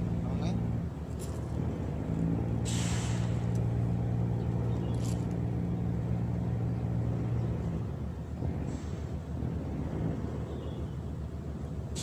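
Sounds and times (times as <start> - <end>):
engine humming: 0.0 - 12.0
brief hiss: 2.7 - 3.4.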